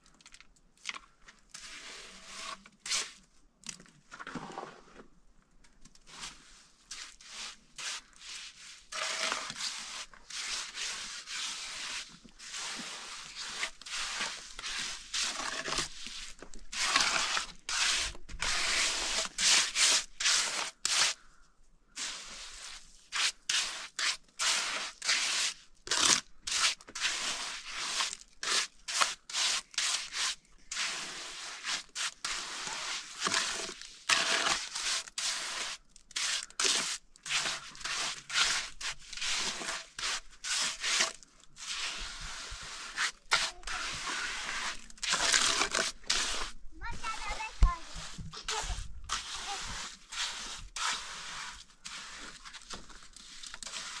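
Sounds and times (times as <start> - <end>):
rough scraping strokes: 1.6 - 3.2, 6.1 - 21.2, 22.0 - 54.0.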